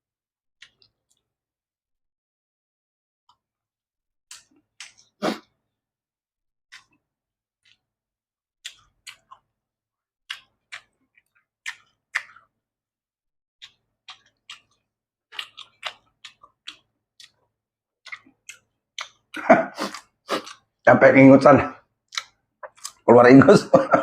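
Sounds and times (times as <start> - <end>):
person chewing and lip smacking: 4.3 - 5.5, 6.7 - 7.0, 7.6 - 7.9, 8.6 - 9.5, 10.3 - 12.6, 13.6 - 20.8, 22.1 - 23.1.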